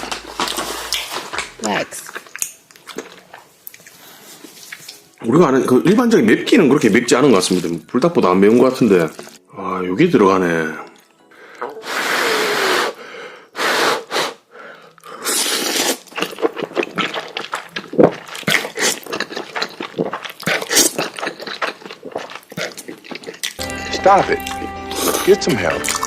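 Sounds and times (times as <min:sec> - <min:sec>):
wet chewing with mouth clicks: 0:00.0 - 0:05.2, 0:08.4 - 0:09.4, 0:15.0 - 0:23.6
person slurping noodles: 0:11.8 - 0:13.0, 0:13.6 - 0:14.4, 0:15.2 - 0:22.9.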